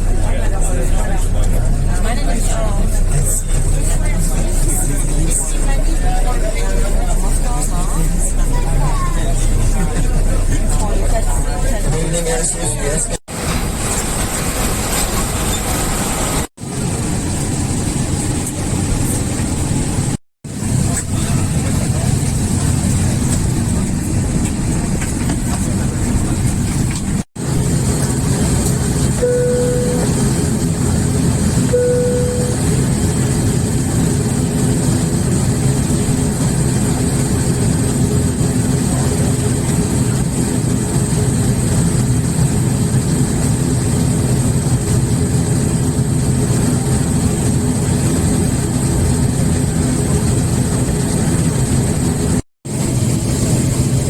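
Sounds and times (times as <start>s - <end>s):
propeller engines running: 0.0s - 54.0s
short chime tones: 29.2s - 30.2s, 31.7s - 32.6s.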